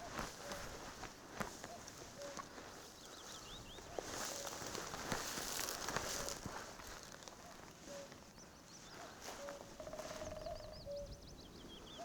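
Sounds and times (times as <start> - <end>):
small songbird singing: 9.8 - 12.0.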